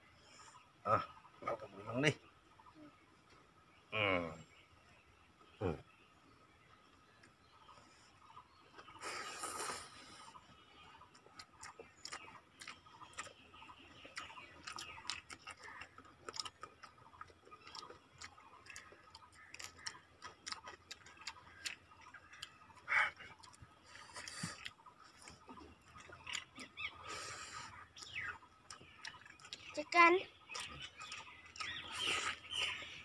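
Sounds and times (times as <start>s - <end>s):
chewing and lip smacking: 8.7s - 33.0s.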